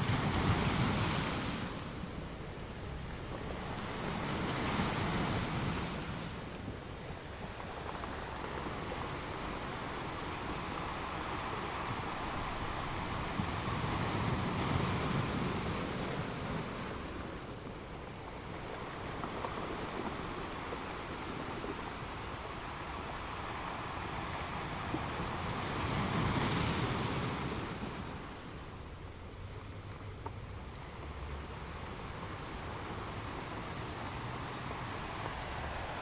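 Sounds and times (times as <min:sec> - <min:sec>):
sea waves breaking on a beach: 0:00.0 - 0:36.0.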